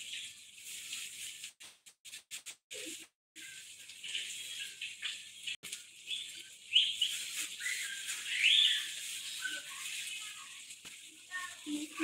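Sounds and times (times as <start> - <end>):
small birds chirping: 3.4 - 10.6.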